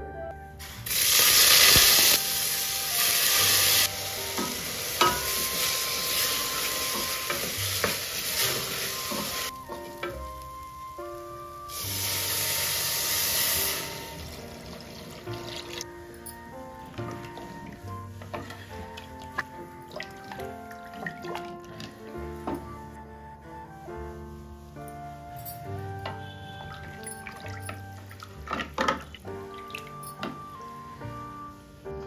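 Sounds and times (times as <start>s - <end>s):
rice sizzling in hot oil: 0.6s - 15.8s
wooden spatula stirring: 16.5s - 22.9s, 25.8s - 30.6s.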